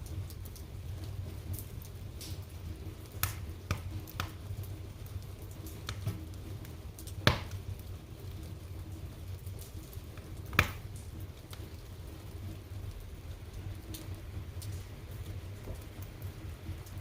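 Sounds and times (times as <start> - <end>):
low rumble of flames: 0.0 - 17.0
wood fire crackling: 0.0 - 17.0
sharp fire pops: 1.5 - 7.8, 9.5 - 11.7.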